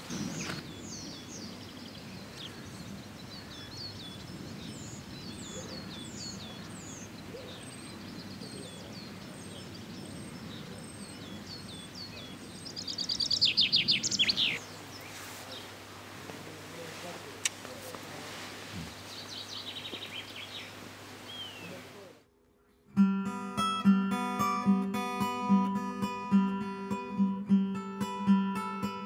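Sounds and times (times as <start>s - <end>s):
birds chirping: 0.0s - 22.8s
bird trill: 3.3s - 15.0s.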